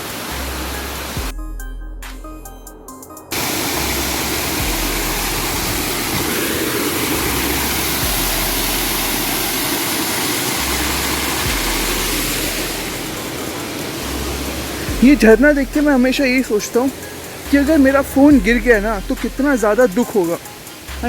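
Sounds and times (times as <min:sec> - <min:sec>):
waterfall rushing: 0:00.0 - 0:01.3, 0:03.3 - 0:21.0
low rumble: 0:03.8 - 0:09.7, 0:14.0 - 0:16.2.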